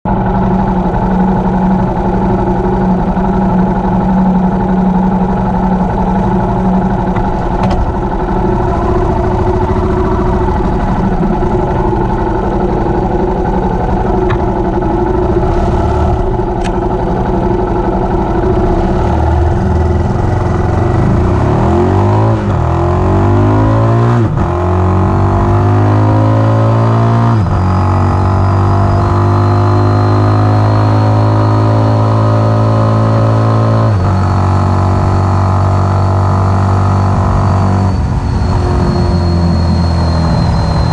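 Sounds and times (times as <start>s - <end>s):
motorcycle engine accelerating: 0.1s - 40.9s
gear changes: 0.2s - 23.7s, 34.0s - 40.9s.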